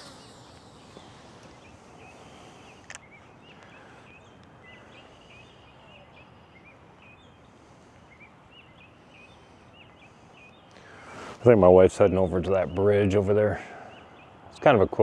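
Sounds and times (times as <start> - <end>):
outdoor background hiss: 0.0 - 15.0
small birds chirping: 0.0 - 15.0.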